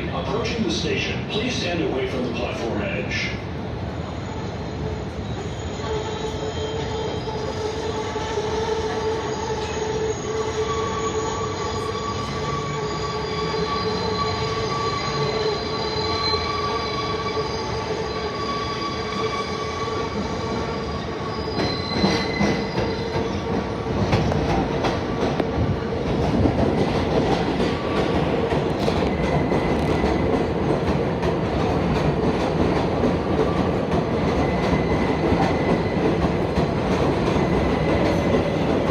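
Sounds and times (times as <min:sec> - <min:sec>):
subway train rumble: 0:00.0 - 0:38.9
wheel squeal: 0:04.1 - 0:07.9, 0:09.2 - 0:23.4.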